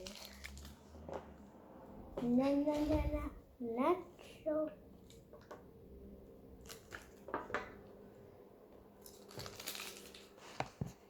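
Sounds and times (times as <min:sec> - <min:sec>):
packaging crinkling: 0:00.0 - 0:00.8, 0:09.0 - 0:10.5.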